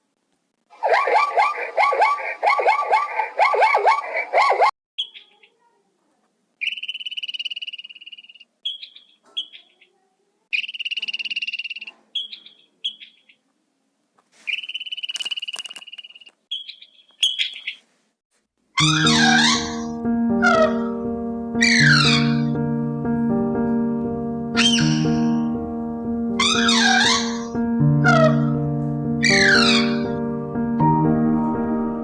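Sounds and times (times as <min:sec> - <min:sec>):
animal calls falling in pitch: 0:18.8 - 0:19.8, 0:20.4 - 0:20.9, 0:26.4 - 0:28.6
frog trilling: 0:18.8 - 0:20.9, 0:21.6 - 0:22.5, 0:24.6 - 0:25.3, 0:26.4 - 0:28.5, 0:29.2 - 0:30.1.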